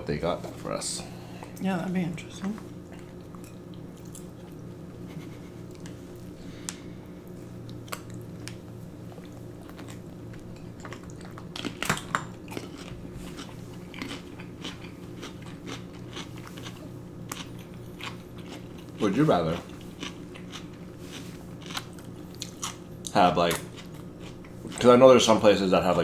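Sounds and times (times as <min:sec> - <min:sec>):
low hum: 0:00.0 - 0:19.0
chewing: 0:02.9 - 0:06.3, 0:07.4 - 0:24.9.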